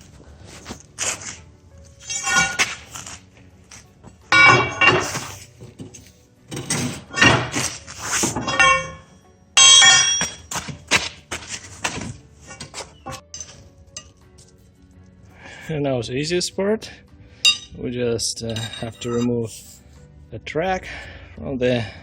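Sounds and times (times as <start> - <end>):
steel parts clanking together: 2.0 - 2.9, 4.3 - 10.5, 11.9 - 14.2, 17.4 - 17.8, 18.4 - 19.8.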